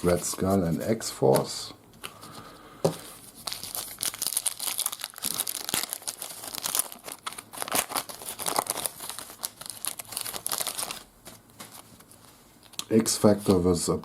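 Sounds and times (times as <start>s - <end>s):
card pack wrapper tearing and crinkling: 3.4s - 11.9s.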